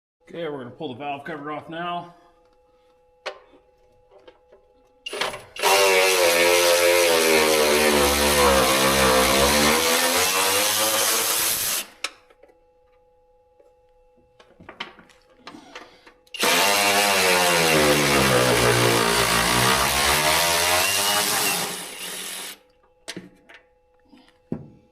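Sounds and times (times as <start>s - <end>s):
power tool motor running: 5.1s - 11.9s, 16.4s - 22.6s.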